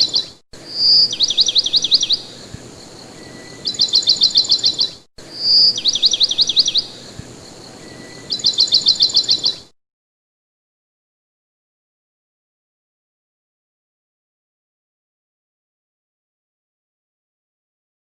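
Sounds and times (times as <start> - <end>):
songbird whistling and trilling: 0.0 - 9.7.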